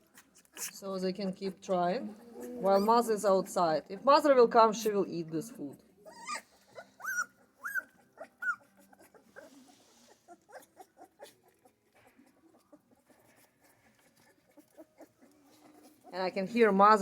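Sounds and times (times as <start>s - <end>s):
puppies whimpering: 0.0s - 5.0s, 5.8s - 17.0s
high puppy cries: 6.0s - 16.1s.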